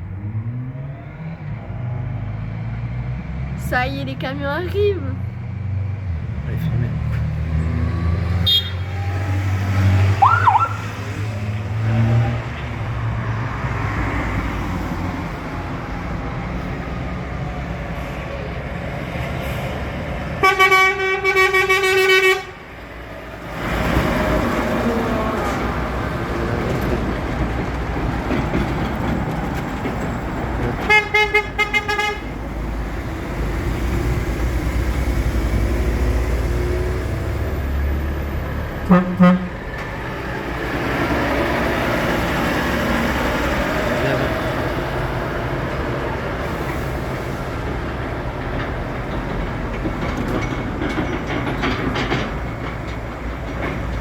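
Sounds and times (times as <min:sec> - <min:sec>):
heavy trucks rumbling past: 0:00.0 - 0:54.0
short horn toots: 0:08.4 - 0:09.2
truck horn long blast: 0:08.4 - 0:09.3, 0:20.4 - 0:22.6, 0:30.9 - 0:32.3, 0:38.9 - 0:39.6.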